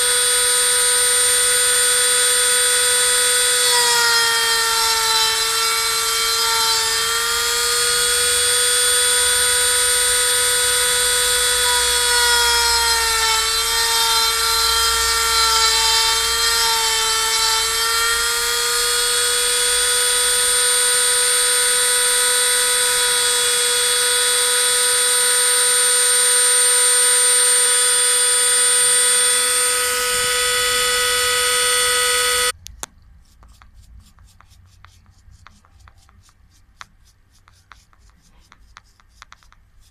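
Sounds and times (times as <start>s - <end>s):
rotary tool high whine: 0.0s - 32.6s.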